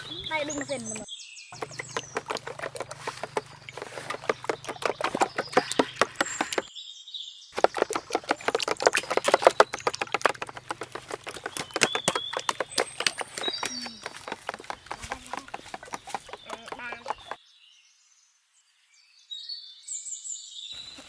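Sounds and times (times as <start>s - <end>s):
birds chirping: 0.0s - 17.8s
clicking and tapping handling food: 1.6s - 6.7s, 7.6s - 17.4s.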